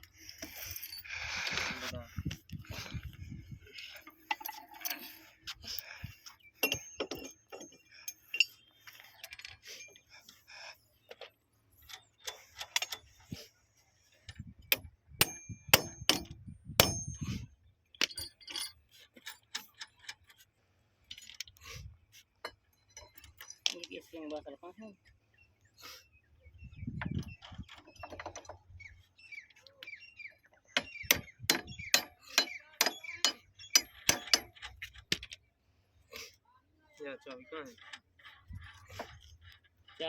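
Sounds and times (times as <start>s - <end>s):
metal tools clinking: 0.1s - 1.9s, 3.7s - 10.5s, 11.8s - 13.2s, 14.8s - 17.4s, 18.0s - 20.5s, 21.1s - 21.6s, 22.4s - 24.1s, 30.8s - 35.4s.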